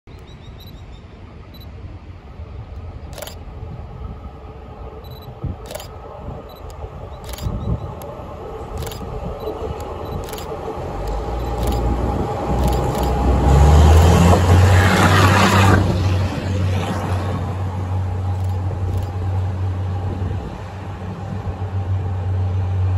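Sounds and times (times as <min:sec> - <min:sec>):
diesel rail vehicle engine rumble: 0:00.1 - 0:22.9
sharp clicks: 0:03.1 - 0:03.4, 0:06.5 - 0:08.1, 0:08.7 - 0:09.1, 0:09.7 - 0:11.9, 0:12.6 - 0:13.2
wheels on rails: 0:05.1 - 0:15.3.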